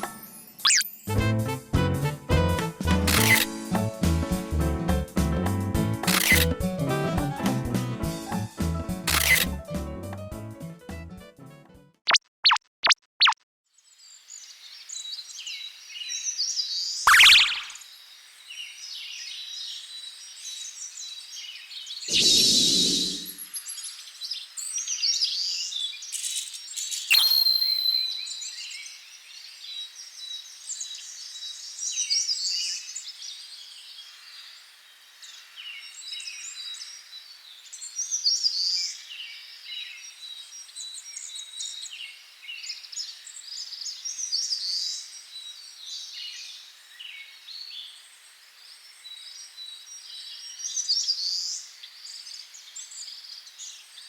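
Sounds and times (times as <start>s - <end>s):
sharp click: 3.1s - 3.5s, 6.0s - 6.4s, 9.1s - 9.5s
birds chirping and singing: 22.0s - 23.4s.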